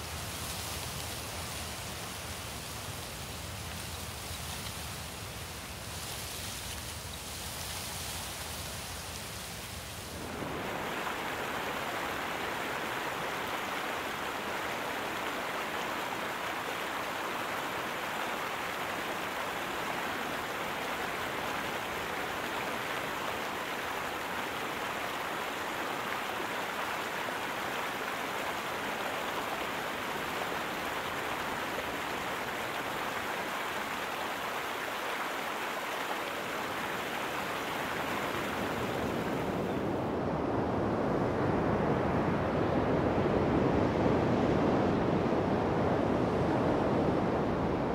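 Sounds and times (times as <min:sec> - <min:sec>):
waterfall rushing: 0:10.1 - 0:40.0.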